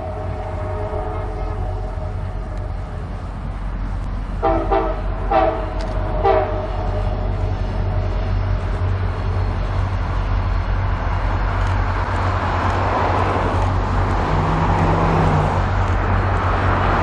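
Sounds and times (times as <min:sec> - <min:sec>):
diesel train engine drone: 0:00.0 - 0:17.0
train rolling noise: 0:00.0 - 0:17.0.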